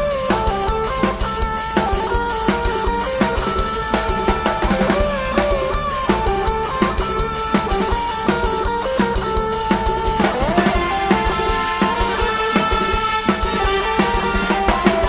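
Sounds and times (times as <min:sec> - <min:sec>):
drum kit driving beat: 0:00.0 - 0:15.0.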